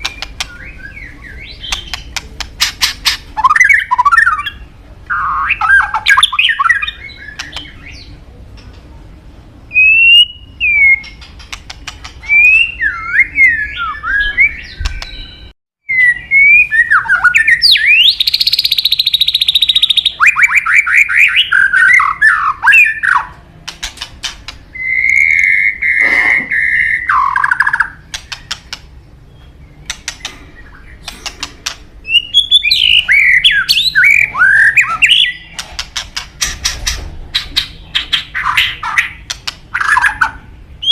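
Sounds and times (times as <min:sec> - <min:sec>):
bird rapid clicking notes: 0:00.0 - 0:00.6, 0:01.6 - 0:04.1, 0:11.0 - 0:12.2, 0:27.1 - 0:28.9, 0:29.8 - 0:31.9, 0:38.9 - 0:40.3
songbird singing whistled phrases: 0:00.0 - 0:02.1, 0:03.4 - 0:08.1, 0:09.7 - 0:11.3, 0:12.2 - 0:23.3, 0:24.7 - 0:28.5, 0:32.0 - 0:35.6, 0:38.0 - 0:40.9.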